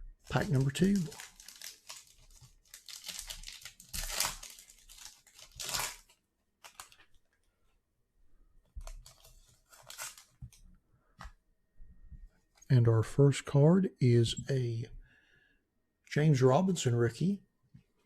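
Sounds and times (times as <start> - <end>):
foil wrapper tearing and crinkling: 0.4 - 7.0, 9.0 - 10.3
cards rustling: 0.4 - 7.2, 8.8 - 10.6.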